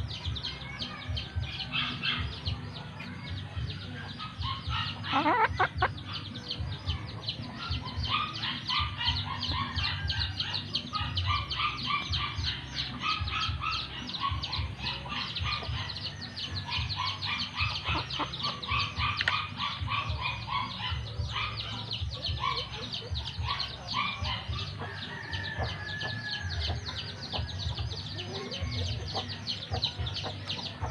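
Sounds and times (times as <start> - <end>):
chickens clucking: 0.0 - 30.9.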